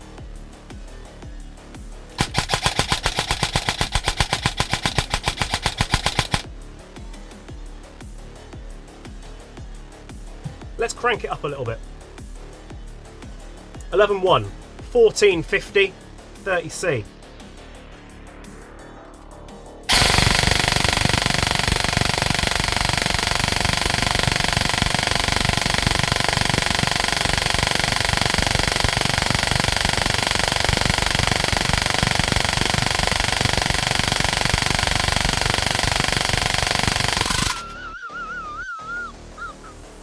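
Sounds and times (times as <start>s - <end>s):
airsoft gun rattle: 2.2s - 6.5s, 19.9s - 37.8s.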